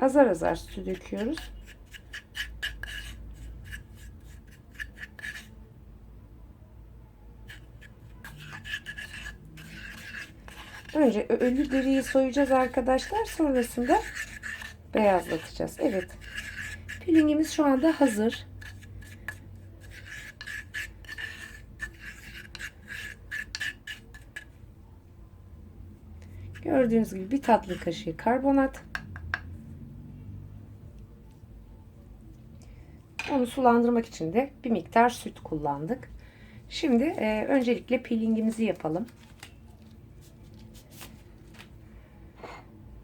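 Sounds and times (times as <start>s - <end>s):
spoon scraping in bowl: 0.2s - 5.6s, 7.4s - 24.6s, 26.5s - 29.3s.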